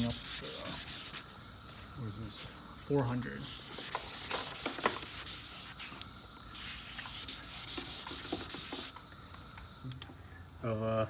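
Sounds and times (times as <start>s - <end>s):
sandpaper sanding plastic: 0.0s - 1.9s, 2.8s - 6.0s, 6.6s - 9.0s.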